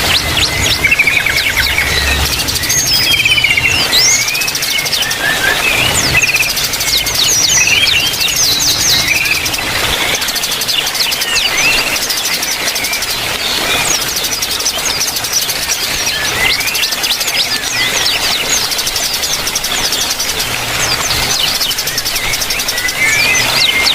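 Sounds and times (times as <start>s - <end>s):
small birds chirping and twittering: 0.0s - 23.9s.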